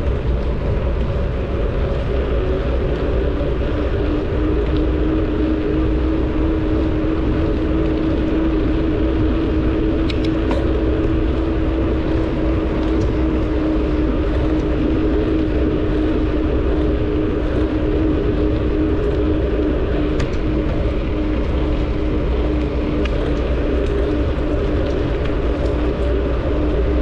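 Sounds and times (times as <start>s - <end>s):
rolling bicycle drone: 0.0s - 27.0s
wind buffeting microphone: 0.0s - 27.0s
faint ticks: 9.1s - 11.3s.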